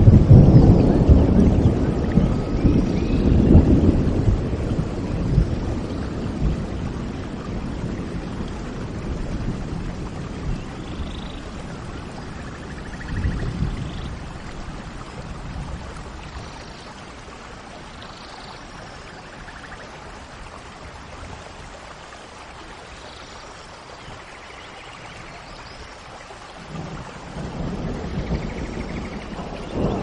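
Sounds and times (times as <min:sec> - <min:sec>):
low thunder rumbles: 0:00.0 - 0:17.4, 0:26.6 - 0:30.0
steady rain falling: 0:00.0 - 0:30.0.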